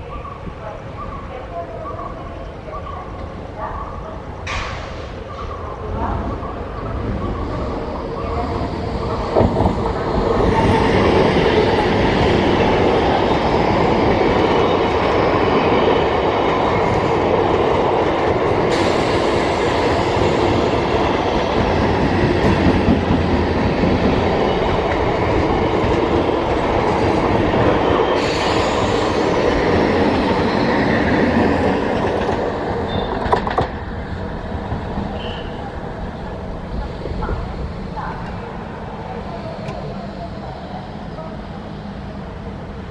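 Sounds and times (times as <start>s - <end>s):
train wheels clattering over track: 13.5s - 33.9s.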